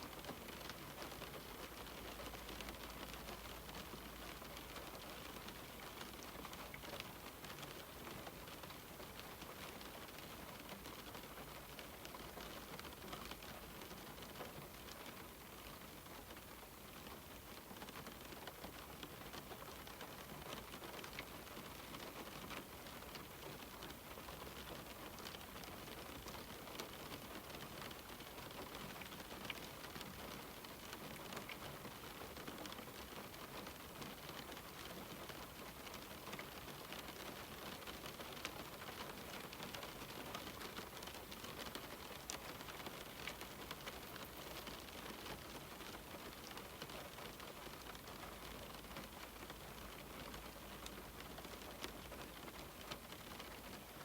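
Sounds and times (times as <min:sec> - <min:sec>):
rain hissing on window: 0:00.0 - 0:54.0
raindrops ticking on glass: 0:00.1 - 0:54.0.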